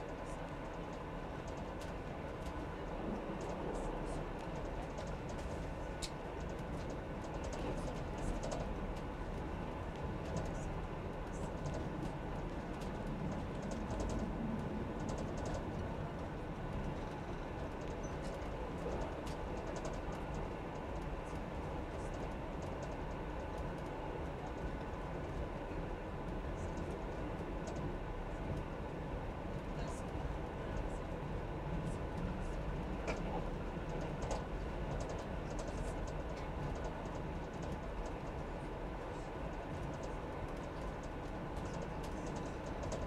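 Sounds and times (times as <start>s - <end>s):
train rumbling: 0.0s - 43.0s
small irregular clicks: 0.1s - 2.6s, 11.5s - 25.0s, 33.0s - 38.4s, 39.5s - 43.0s.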